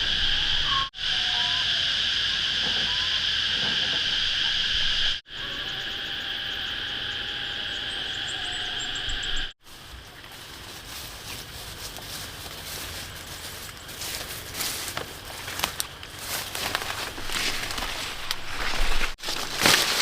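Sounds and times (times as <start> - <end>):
insect chorus buzzing: 0.0 - 20.0.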